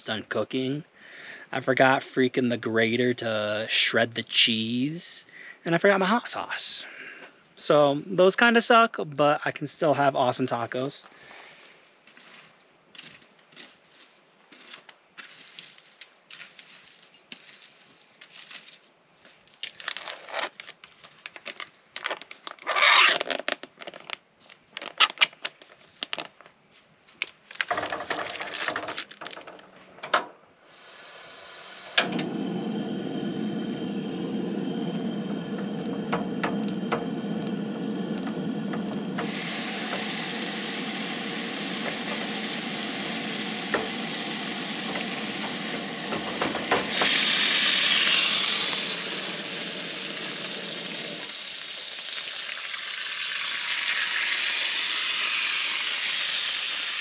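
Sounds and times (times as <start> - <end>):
crackling and tearing sounds: 14.6 - 29.7
meat sizzling in a skillet: 46.9 - 57.0.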